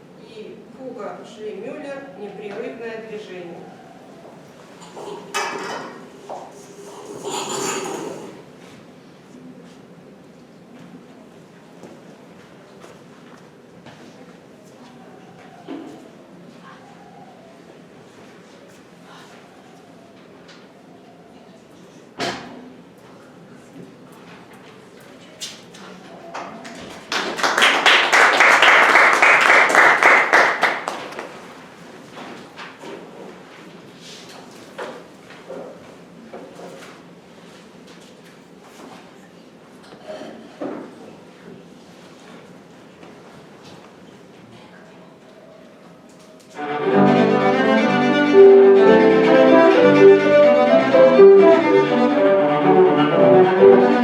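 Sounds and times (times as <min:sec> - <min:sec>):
audience applause: 0:27.0 - 0:31.5
cello playing long held notes: 0:46.6 - 0:54.0.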